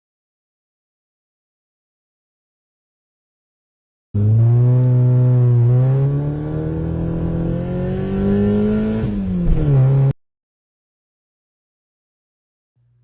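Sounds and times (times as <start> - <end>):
car engine accelerating: 4.2 - 10.2.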